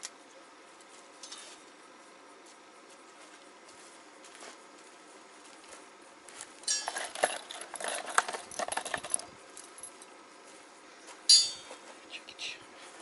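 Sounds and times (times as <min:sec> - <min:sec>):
gear rattling and clinking: 0:06.6 - 0:10.1.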